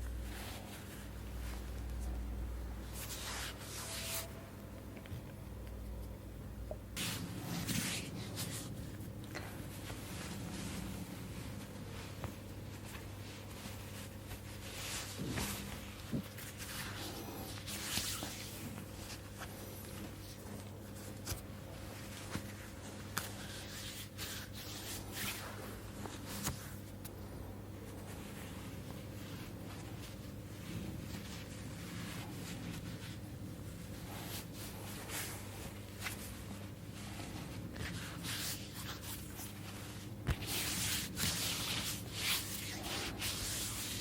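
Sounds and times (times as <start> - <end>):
hands rubbing skin and cloth: 0.0 - 4.5, 6.9 - 44.0
steady low hum: 0.0 - 44.0
hands rubbing oiled skin: 27.9 - 44.0.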